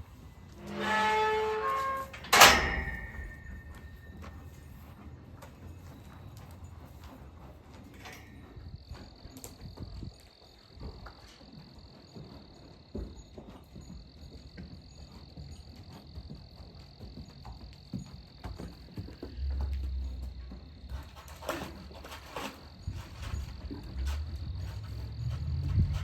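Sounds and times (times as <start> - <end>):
low rumble: 23.5 - 26.0.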